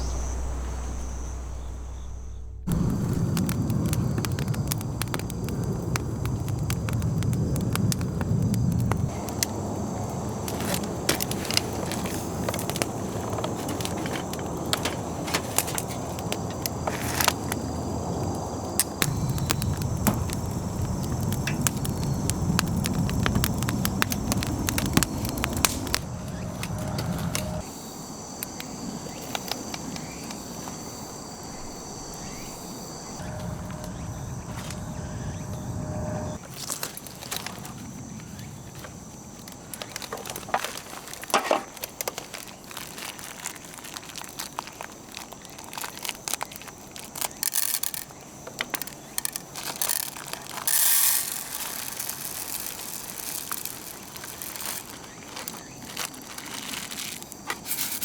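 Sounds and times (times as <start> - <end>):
low steady rumble: 0.0 - 4.1, 17.9 - 27.6, 33.1 - 36.4
handling rustling and clicks: 10.4 - 17.8, 36.4 - 58.0.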